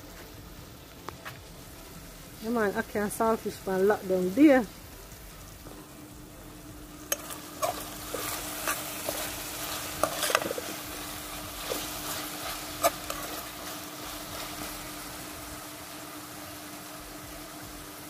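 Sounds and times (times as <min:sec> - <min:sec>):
fish sizzling in hot oil: 0:00.0 - 0:18.0
utensil scraping a pot: 0:07.1 - 0:14.8.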